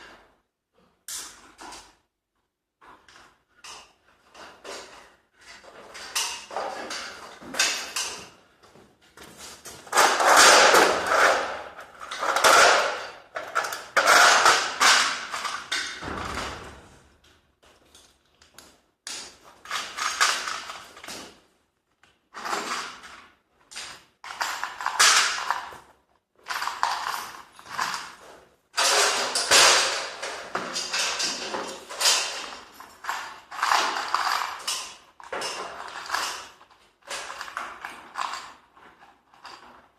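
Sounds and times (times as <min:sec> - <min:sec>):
garage door creaking and rattling: 0:09.2 - 0:17.2, 0:26.6 - 0:39.9.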